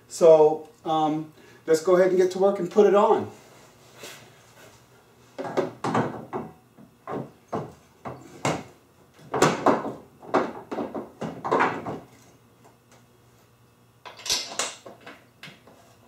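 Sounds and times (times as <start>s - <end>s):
metal parts knocking and scraping: 14.1s - 15.2s.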